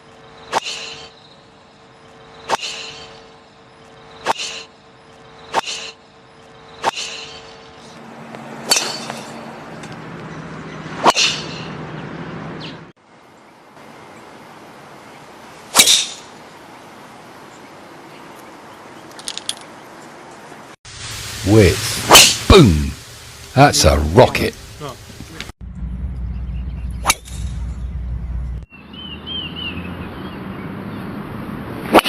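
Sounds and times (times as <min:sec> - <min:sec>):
golf club striking ball: 0:08.3 - 0:10.0, 0:15.7 - 0:16.3.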